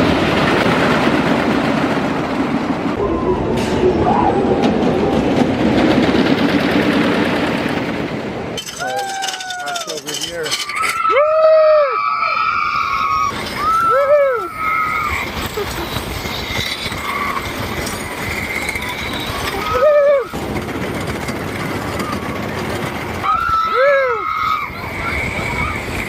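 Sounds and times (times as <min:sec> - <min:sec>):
roller coaster rushing: 0:00.0 - 0:26.0
riders yelling: 0:08.7 - 0:15.5, 0:23.2 - 0:26.0.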